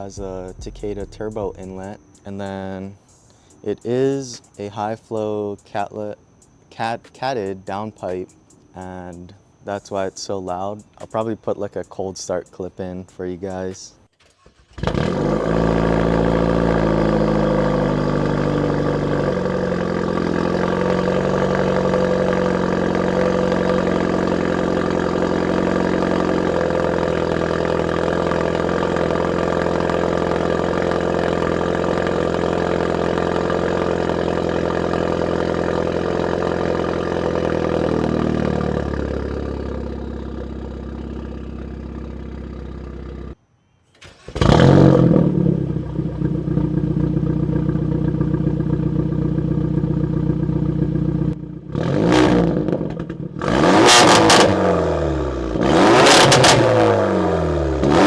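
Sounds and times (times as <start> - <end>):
car engine cold idle: 0.0 - 2.6, 14.2 - 43.4, 44.0 - 58.0.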